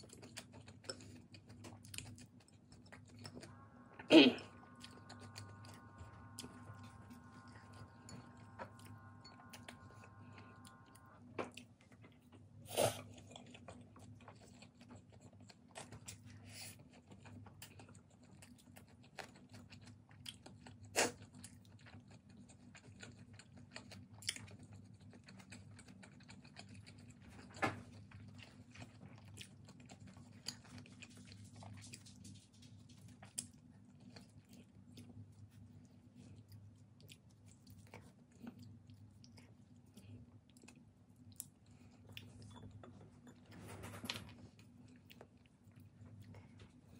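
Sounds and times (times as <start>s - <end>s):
steady low hum: 0.0s - 18.6s
person chewing noodles: 0.0s - 43.4s, 44.3s - 46.9s.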